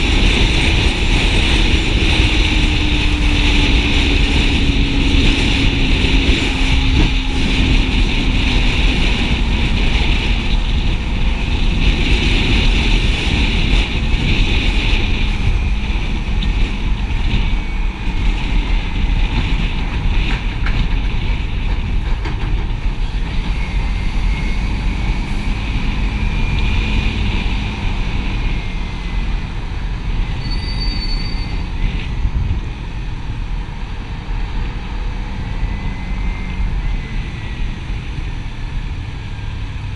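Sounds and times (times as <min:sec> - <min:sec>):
motorcycle engine running: 0:00.0 - 0:30.5
wind rush on microphone: 0:00.0 - 0:39.9.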